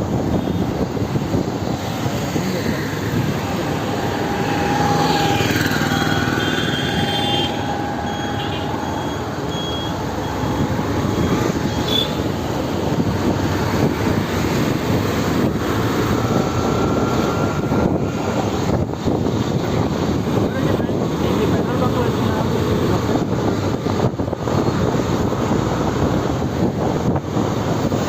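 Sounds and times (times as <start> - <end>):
vehicles passing: 0.0 - 28.0
wind and road noise: 0.0 - 28.0
short high beeps: 7.6 - 11.9.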